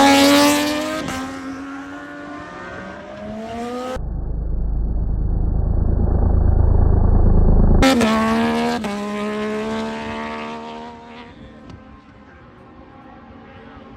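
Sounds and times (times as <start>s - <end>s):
motorcycle engine running: 3.9s - 8.3s.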